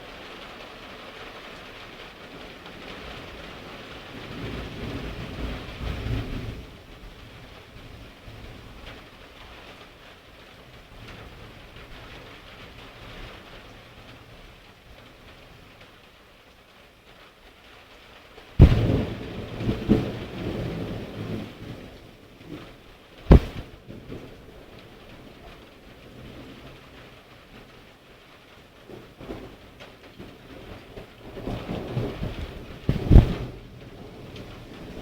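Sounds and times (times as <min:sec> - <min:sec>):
steady rain: 0:00.0 - 0:35.0
thunderclap: 0:18.6 - 0:24.8, 0:30.2 - 0:35.0.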